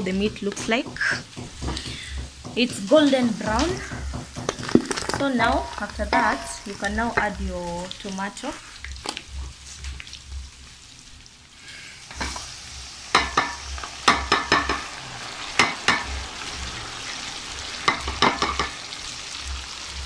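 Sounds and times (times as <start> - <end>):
utensils knocking on metal pot: 0.0 - 7.6, 13.1 - 14.9, 15.6 - 16.2, 17.8 - 18.8
beef sizzling in oil: 0.0 - 20.0.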